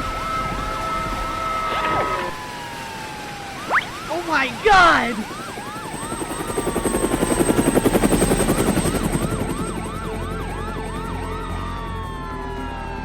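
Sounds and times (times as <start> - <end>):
cartoon siren wailing: 2.1 - 6.7.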